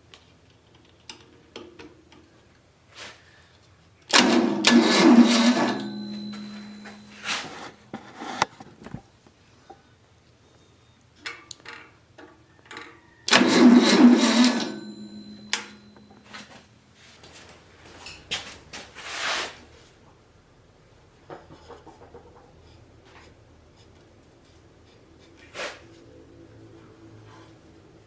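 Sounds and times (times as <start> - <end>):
engine turning over: 4.1 - 7.5, 13.3 - 16.2.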